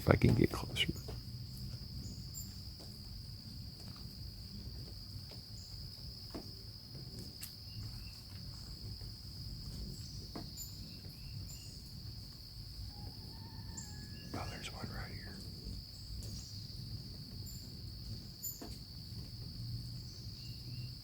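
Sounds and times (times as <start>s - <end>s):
crickets trilling: 0.0s - 21.0s
hummingbirds chirping: 0.1s - 3.3s, 9.4s - 21.0s.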